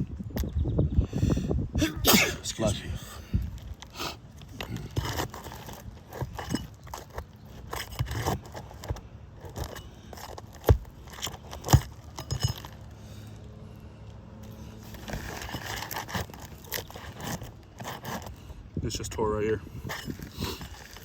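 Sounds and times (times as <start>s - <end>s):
roof shingles scraping and crackling: 3.4s - 13.5s, 14.4s - 18.6s, 19.9s - 21.0s.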